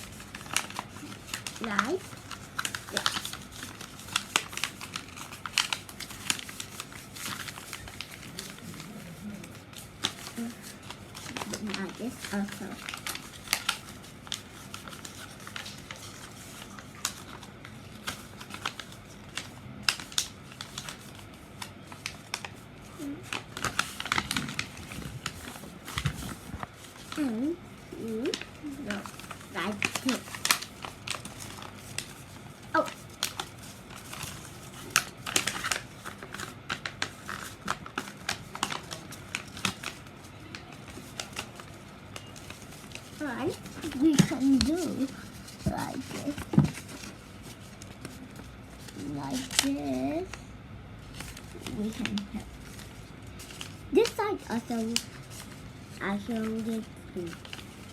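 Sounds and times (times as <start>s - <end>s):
paper folding and creasing: 0.0s - 50.4s, 51.0s - 57.9s.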